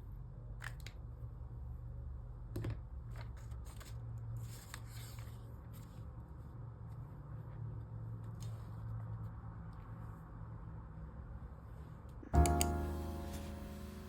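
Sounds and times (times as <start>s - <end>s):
low steady hum: 12.2s - 14.0s.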